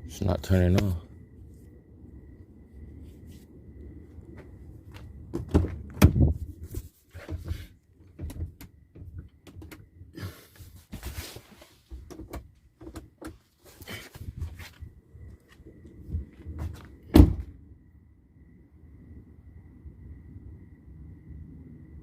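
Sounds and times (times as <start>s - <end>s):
clicks and knocks at car: 5.3s - 6.2s, 7.2s - 9.8s, 11.9s - 13.5s
car door thumping shut: 17.1s - 17.5s.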